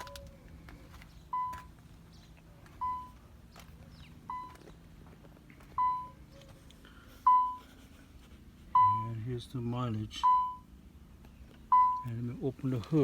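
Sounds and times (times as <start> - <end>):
car warning chime: 0.0 - 0.4, 1.3 - 1.7, 2.7 - 3.2, 4.3 - 4.6, 5.7 - 6.5, 7.3 - 7.6, 8.8 - 9.2, 10.2 - 10.7, 11.7 - 12.2.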